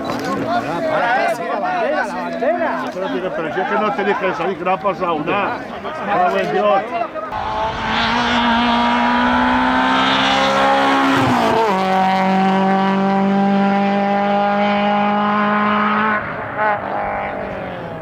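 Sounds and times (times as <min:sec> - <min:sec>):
race car engine at full throttle: 0:07.3 - 0:18.0.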